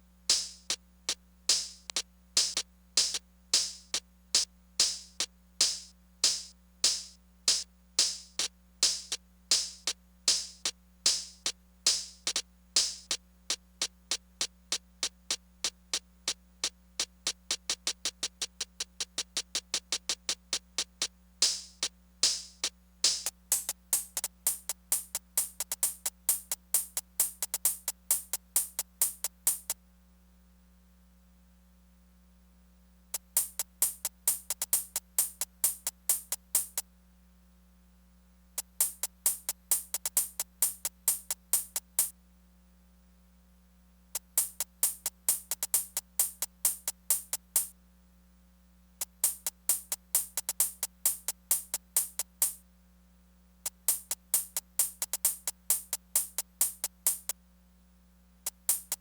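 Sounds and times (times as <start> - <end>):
drum machine pattern: 1.5 - 16.0, 16.6 - 29.8, 33.2 - 36.8, 38.6 - 42.1, 44.2 - 47.7, 49.0 - 52.6, 53.7 - 57.4, 58.5 - 59.0.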